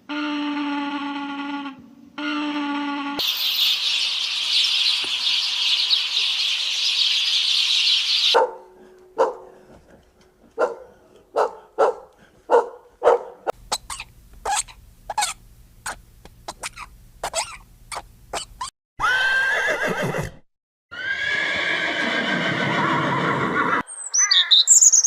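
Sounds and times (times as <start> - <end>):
loud steady hiss: 3.2 - 8.1.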